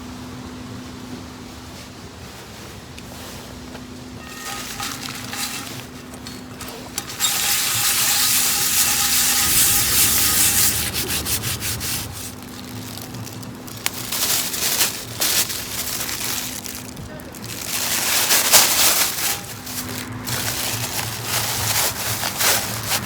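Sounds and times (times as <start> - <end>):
camp gear rubbing and rustling: 1.7 - 23.0
short scrapes and clicks: 4.2 - 12.4.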